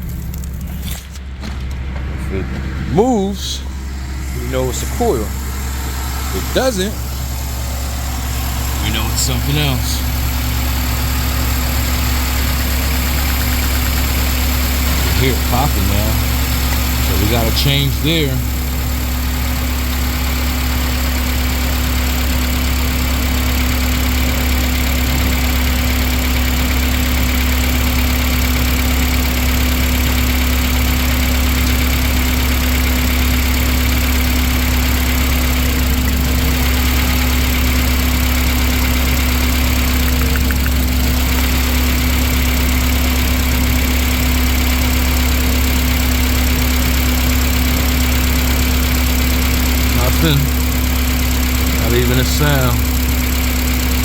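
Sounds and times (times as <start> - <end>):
car engine idling with misfire: 0.0 - 54.0.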